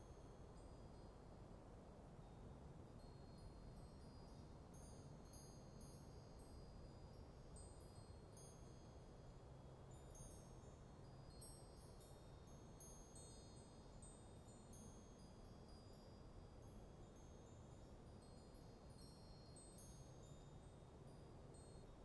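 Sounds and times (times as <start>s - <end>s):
wind chimes tinkling: 9.9s - 22.0s.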